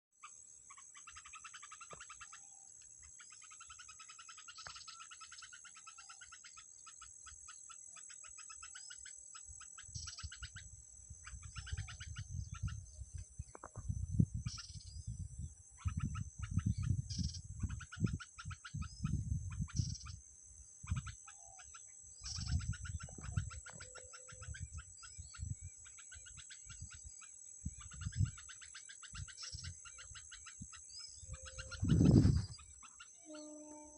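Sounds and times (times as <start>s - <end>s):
frogs trilling: 0.2s - 13.8s, 14.4s - 33.9s
high-pitched hum: 31.1s - 33.9s.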